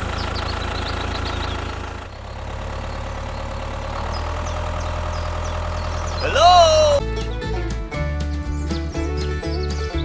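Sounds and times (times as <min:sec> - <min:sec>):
mini tractor engine idling: 0:00.0 - 0:07.0.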